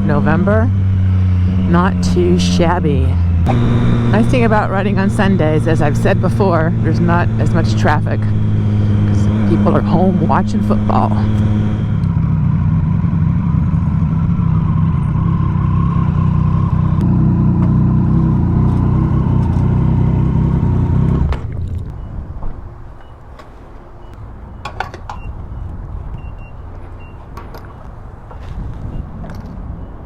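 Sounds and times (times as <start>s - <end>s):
motorcycle engine running: 0.0s - 21.9s
wind rush on microphone: 25.2s - 26.8s, 28.0s - 30.0s.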